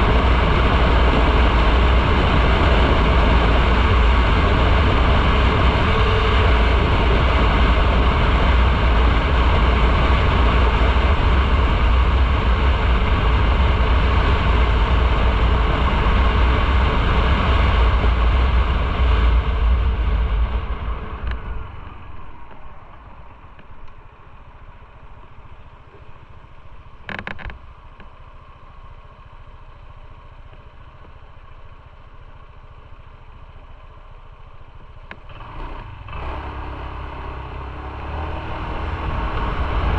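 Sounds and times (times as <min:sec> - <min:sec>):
wind on microphone: 0:00.0 - 0:23.9
motorcycle engine rumble: 0:00.0 - 0:39.9.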